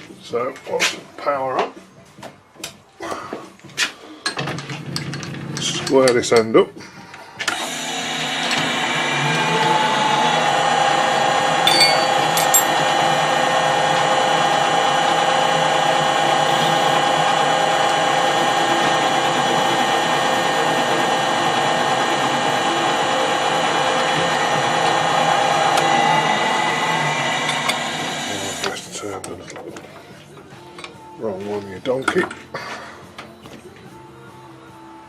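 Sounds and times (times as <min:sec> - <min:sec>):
metal lathe gear whine: 0:07.5 - 0:28.8.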